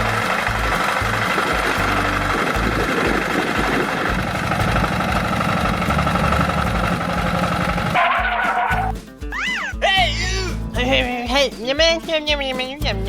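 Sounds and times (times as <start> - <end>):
small motor running: 0.0 - 8.9.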